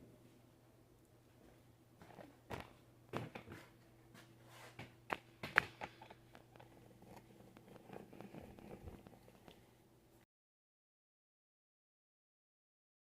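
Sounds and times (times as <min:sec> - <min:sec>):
faint steady hum: 0:00.0 - 0:10.3.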